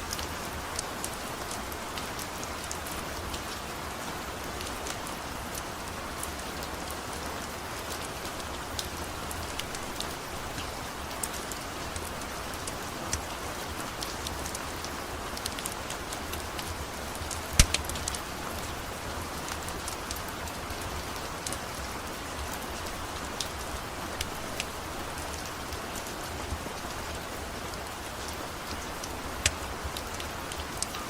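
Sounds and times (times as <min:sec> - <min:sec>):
steady rain falling: 0:00.0 - 0:31.0
fire crackling: 0:17.1 - 0:20.5.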